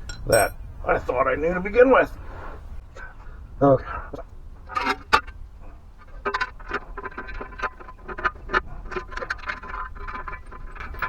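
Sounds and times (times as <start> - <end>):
hand tools clicking: 0.0 - 0.6.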